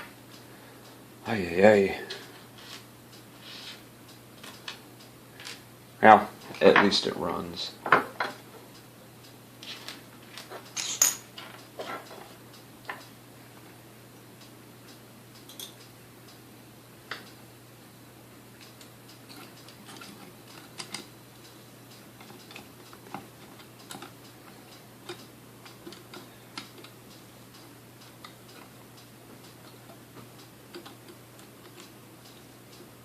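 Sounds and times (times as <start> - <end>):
faint steady hum: 0.0 - 33.0
light clicks of small parts and tools: 14.4 - 16.4, 18.6 - 32.9.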